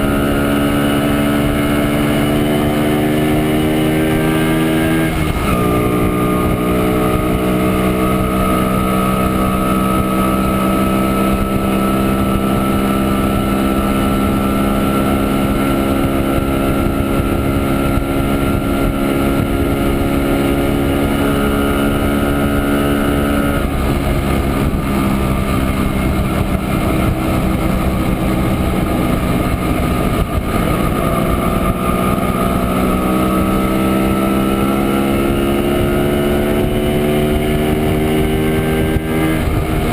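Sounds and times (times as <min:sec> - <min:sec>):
motorcycle engine running: 0:00.0 - 0:39.9
rush of noise: 0:15.2 - 0:39.9.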